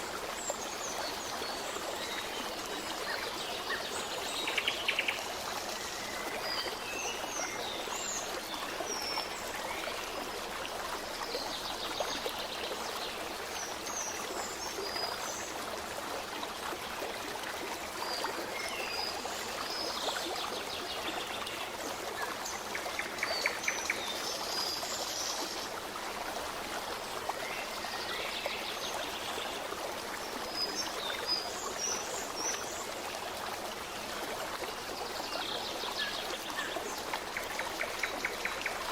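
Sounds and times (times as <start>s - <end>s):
stream babbling: 0.0s - 38.9s.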